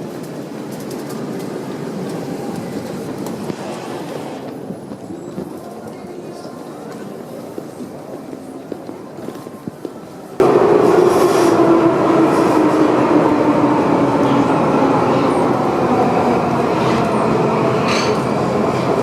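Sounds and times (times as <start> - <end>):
train humming: 6.9 - 19.0.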